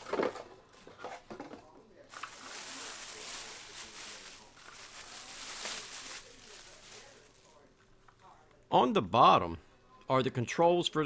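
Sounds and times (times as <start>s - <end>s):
packaging wrap crinkling: 2.1s - 7.7s.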